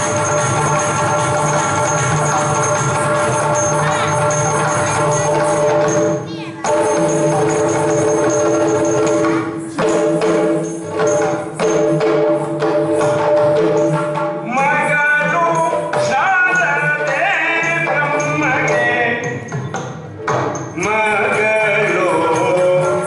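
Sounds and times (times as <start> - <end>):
drum and cymbal strokes: 0.0 - 23.0
person singing: 14.4 - 19.4.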